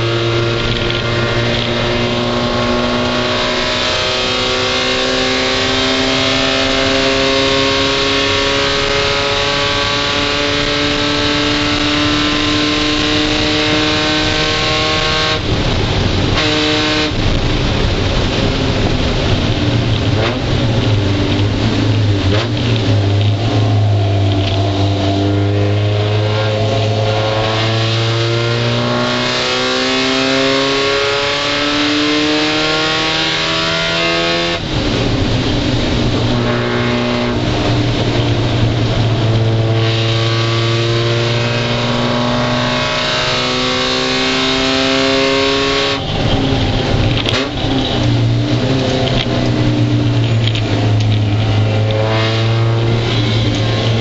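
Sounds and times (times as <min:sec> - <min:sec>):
race car engine under load: 0:00.0 - 0:54.0
road and rain spray hiss: 0:15.4 - 0:16.4.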